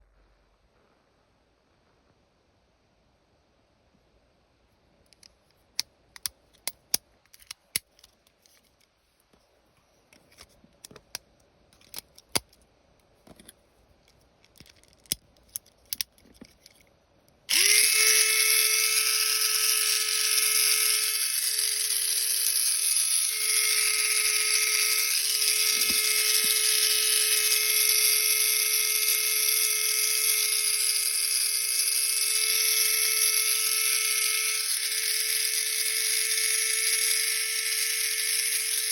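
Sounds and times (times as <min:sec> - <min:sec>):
small electric motor whine: 0:17.5 - 0:38.9.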